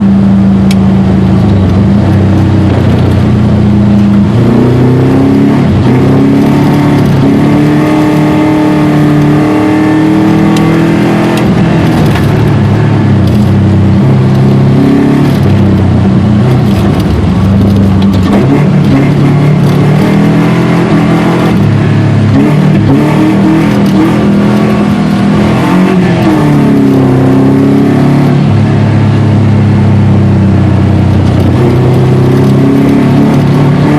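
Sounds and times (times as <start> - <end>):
rally car engine revving: 0.0 - 33.9.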